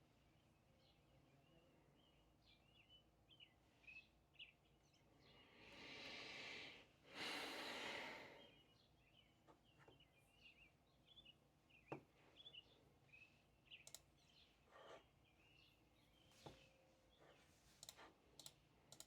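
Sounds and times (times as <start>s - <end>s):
faint birds chirping: 0.0s - 6.1s, 6.7s - 19.0s
light clicks: 13.8s - 14.1s, 17.8s - 19.0s.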